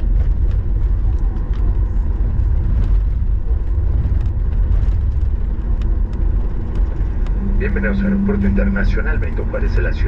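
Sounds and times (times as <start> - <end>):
aircraft cabin low rumble: 0.0 - 10.0.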